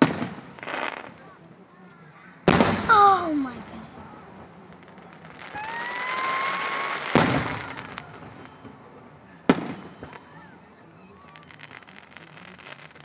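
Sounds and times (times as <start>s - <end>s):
firework bang: 0.0s - 1.2s, 2.5s - 10.4s
firework crackle: 0.0s - 1.4s, 2.2s - 13.0s
whistling firework shell: 5.2s - 13.0s.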